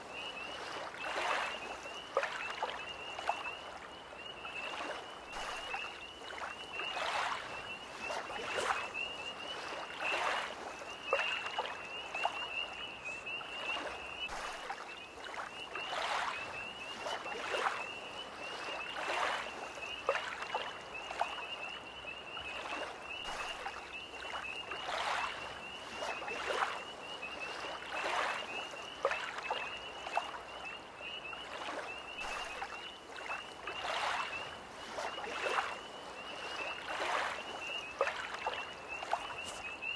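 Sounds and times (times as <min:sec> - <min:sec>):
lake waves lapping: 0:00.0 - 0:21.7, 0:22.3 - 0:39.9
tree frog chorus trilling: 0:37.6 - 0:39.9.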